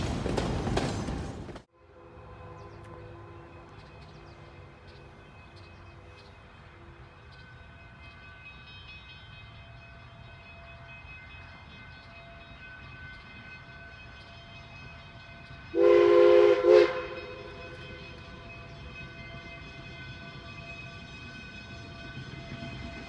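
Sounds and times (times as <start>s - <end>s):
steam locomotive chime whistle: 7.2s - 23.0s.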